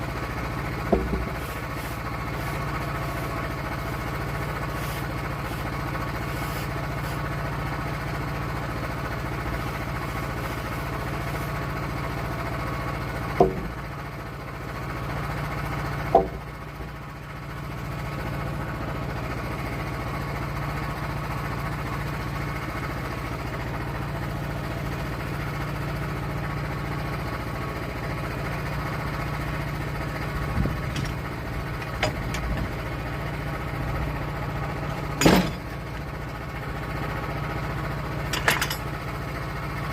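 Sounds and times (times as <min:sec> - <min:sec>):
sawmill engine running: 0:00.0 - 0:39.9
sharp knocks: 0:00.9 - 0:01.4, 0:13.4 - 0:13.8, 0:16.1 - 0:16.4.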